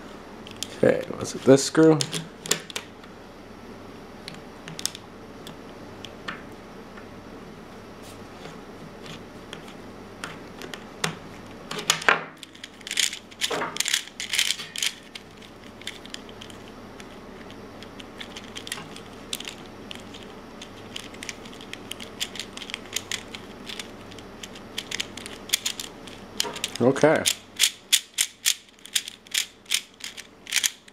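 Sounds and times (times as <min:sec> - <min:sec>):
plastic puzzle pieces clicking: 0:11.8 - 0:30.9.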